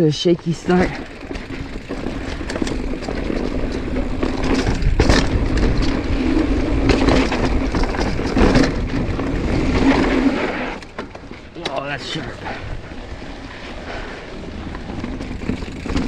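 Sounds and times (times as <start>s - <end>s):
bike rattling and clattering: 0.0s - 16.0s
tyres crunching over rocks: 0.9s - 11.8s
wind rumble on microphone: 1.6s - 10.2s.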